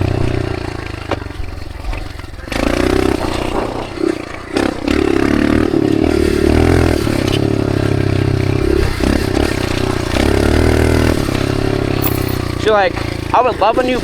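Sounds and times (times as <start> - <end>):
dirt bike engine under throttle: 0.0 - 14.0.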